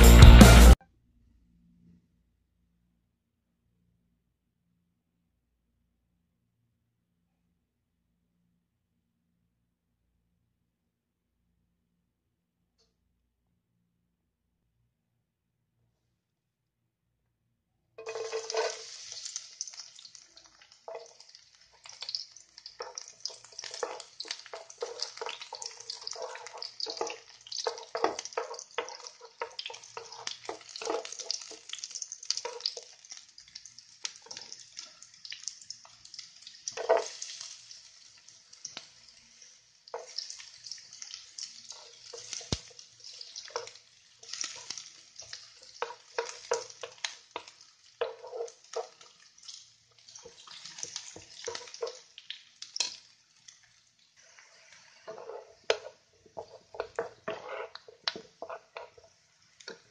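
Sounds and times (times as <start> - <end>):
wooden spatula scraping pan: 18.0 - 19.4, 22.8 - 31.7, 36.8 - 37.4, 41.6 - 42.6, 43.2 - 49.1, 50.2 - 52.1, 54.2 - 59.9
garlic sizzling in hot oil: 18.0 - 59.9.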